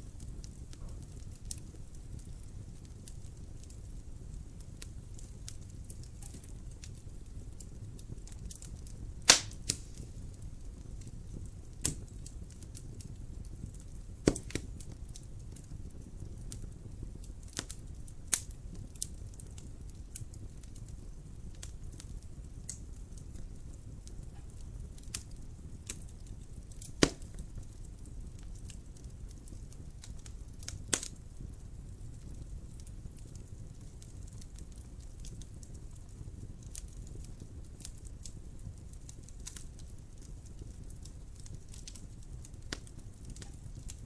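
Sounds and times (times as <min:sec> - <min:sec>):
wood fire crackling: 0:00.0 - 0:44.0.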